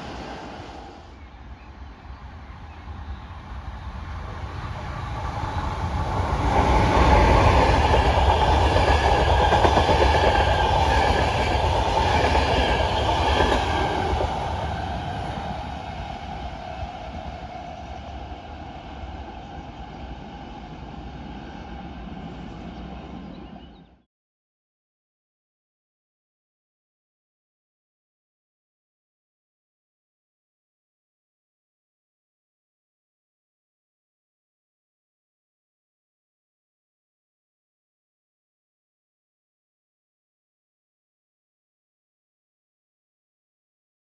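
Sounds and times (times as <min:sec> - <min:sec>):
train passing on rails: 0:00.0 - 0:24.0.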